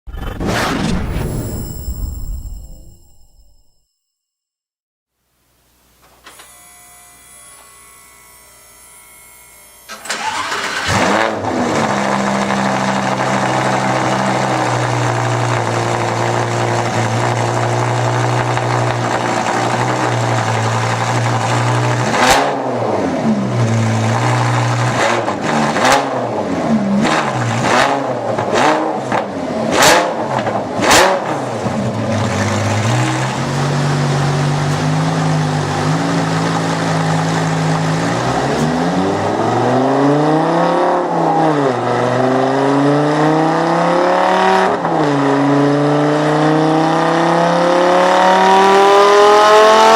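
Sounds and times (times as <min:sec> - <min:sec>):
car engine revving and idling: 0:10.1 - 0:49.9.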